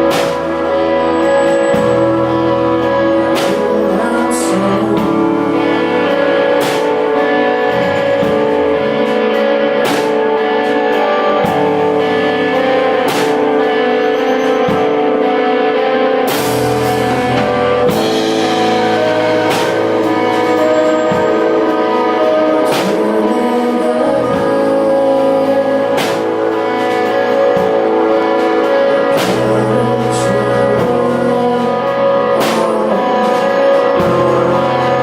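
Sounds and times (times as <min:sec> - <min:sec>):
bass guitar: 0:00.0 - 0:35.0
drum kit: 0:00.0 - 0:35.0
sustained guitar chords: 0:00.0 - 0:35.0
cymbal crashes: 0:16.3 - 0:22.9.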